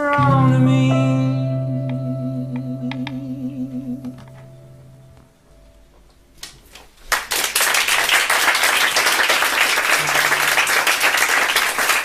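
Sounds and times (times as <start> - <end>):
audience applause: 7.1 - 12.0.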